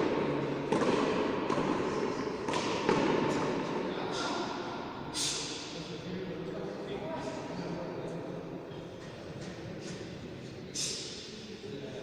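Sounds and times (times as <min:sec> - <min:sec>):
hard ball smacking court walls: 0:00.0 - 0:03.8.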